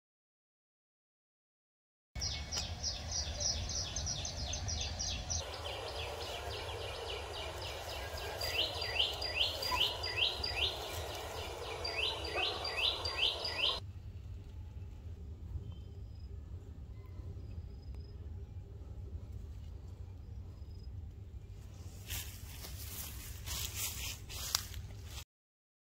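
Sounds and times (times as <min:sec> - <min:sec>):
low steady rumble: 0:02.6 - 0:23.4
bird calling sharp descending notes: 0:05.4 - 0:13.8.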